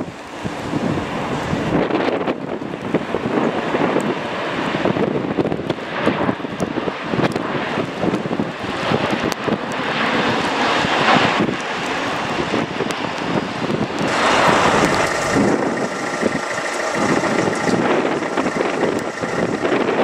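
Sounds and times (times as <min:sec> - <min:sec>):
jet engines roaring: 0:00.0 - 0:20.0
wind buffeting microphone: 0:00.0 - 0:20.0
thin steady engine tones: 0:14.1 - 0:20.0.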